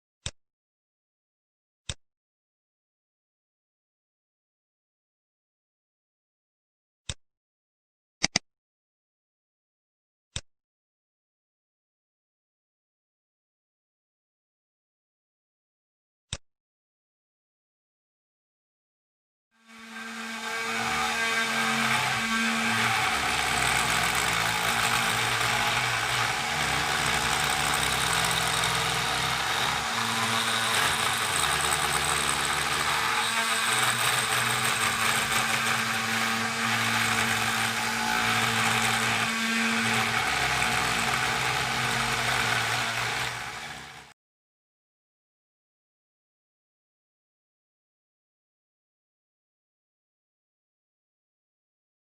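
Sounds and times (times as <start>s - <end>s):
gritty cutting noise: 19.6s - 44.1s.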